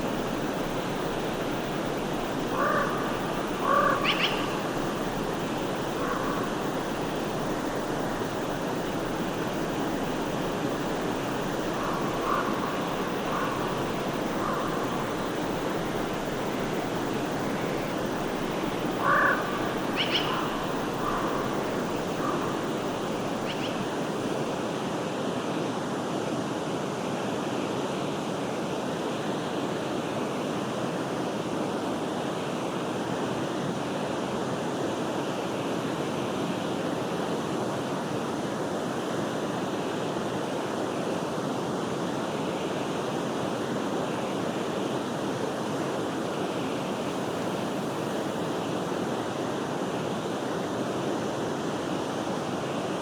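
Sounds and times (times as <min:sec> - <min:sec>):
forest stream rushing: 0:00.0 - 0:53.0
short animal calls: 0:02.5 - 0:04.7, 0:19.0 - 0:21.4.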